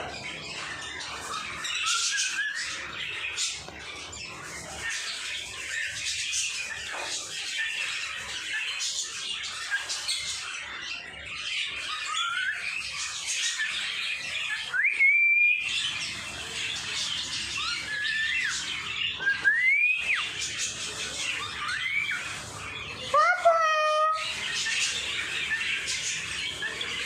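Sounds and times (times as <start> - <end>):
pet birds chattering: 0.0 - 27.0
rising whistled bird calls: 1.1 - 3.6, 11.8 - 15.9, 17.4 - 22.4.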